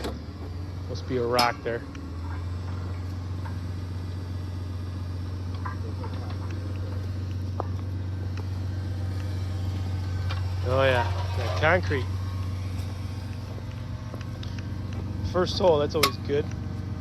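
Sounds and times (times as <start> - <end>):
tractor engine running under load: 0.0 - 17.0
auger grinding on rock: 9.4 - 14.6.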